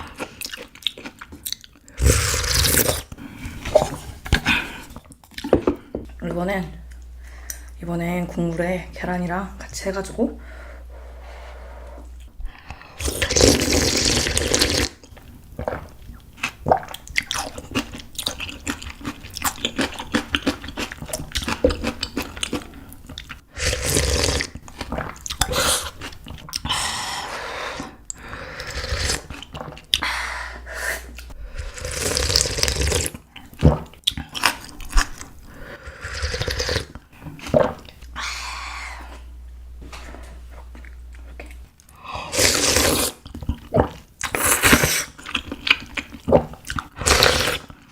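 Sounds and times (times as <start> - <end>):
slurping noodles: 2.0 - 5.0, 12.8 - 15.0, 23.5 - 26.0, 26.6 - 29.8, 30.7 - 33.2, 34.5 - 39.2, 42.2 - 47.8.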